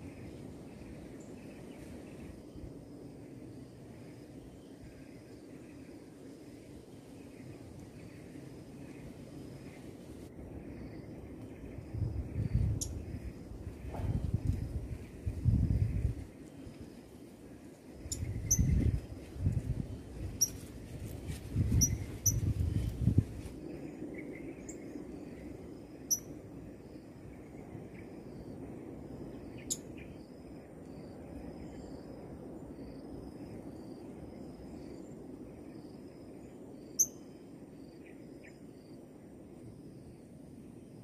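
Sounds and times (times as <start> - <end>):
high insect whine: 0.0 - 41.0
repeating insect chirr: 10.5 - 13.9, 17.9 - 19.2, 19.8 - 20.7, 21.6 - 39.0
low thumps and rustles: 13.8 - 14.7.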